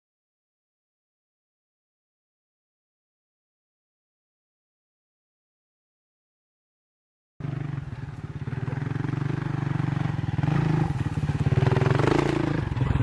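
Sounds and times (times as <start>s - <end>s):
motorcycle engine running hard: 7.4s - 13.0s.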